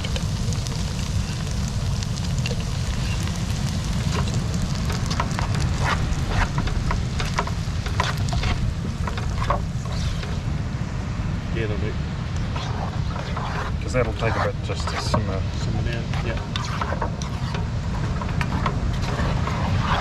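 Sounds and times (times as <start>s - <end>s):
food sizzling in a pot: 0.0s - 10.5s
wind rumble on microphone: 0.0s - 20.0s.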